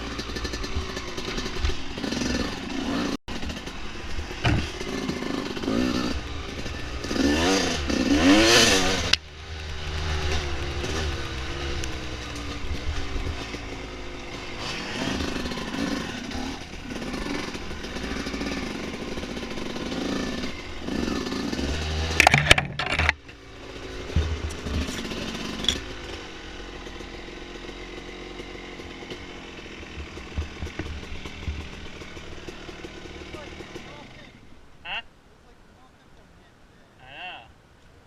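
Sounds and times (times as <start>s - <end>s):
dirt bike engine revving: 0.0s - 35.0s
sharp knocks and clatter: 4.4s - 5.1s, 21.7s - 23.4s, 24.1s - 26.0s, 28.8s - 33.8s.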